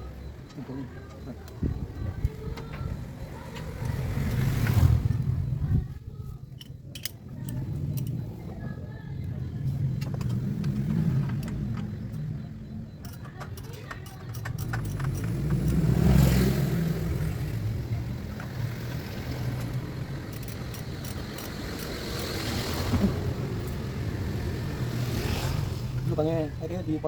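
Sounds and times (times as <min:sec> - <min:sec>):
car engine running: 0:07.5 - 0:27.0.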